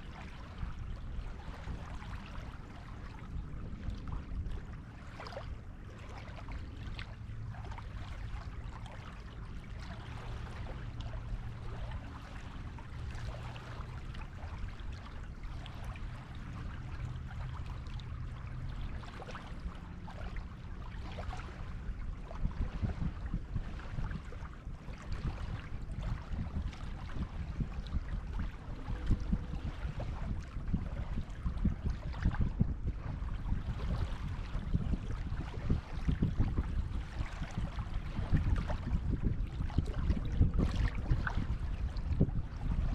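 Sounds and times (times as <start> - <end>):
low rumble: 25.0 - 42.9.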